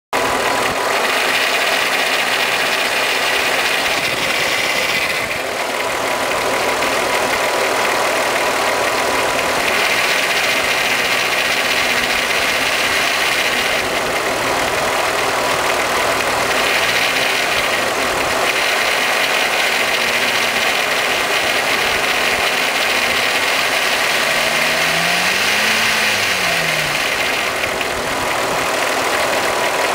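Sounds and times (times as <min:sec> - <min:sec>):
car engine idling: 0:00.1 - 0:29.9.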